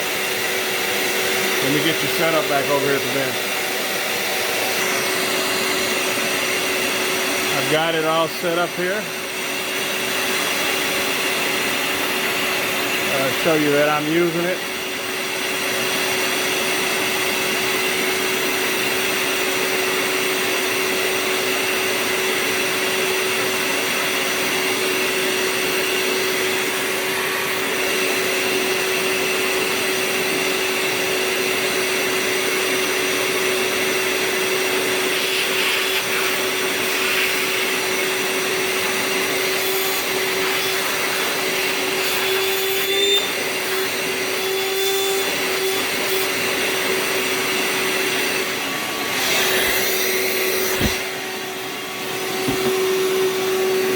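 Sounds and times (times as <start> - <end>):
shop vacuum running: 0.0 - 53.9
knock: 52.4 - 52.8.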